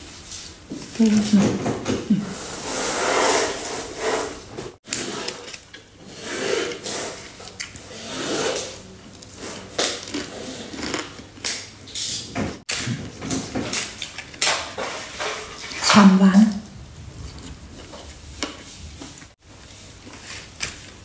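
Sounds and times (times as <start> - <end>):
person chewing crunchy food: 8.5 - 11.5, 17.0 - 19.4.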